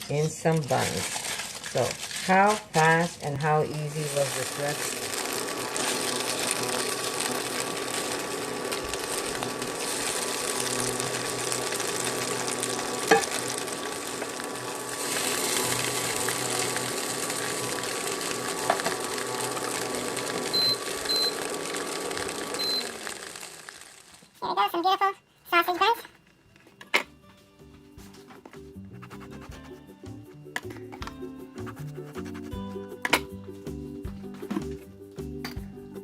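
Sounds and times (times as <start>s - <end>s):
electric hum: 0.0s - 24.4s
sausages sizzling in a pan: 0.0s - 24.4s.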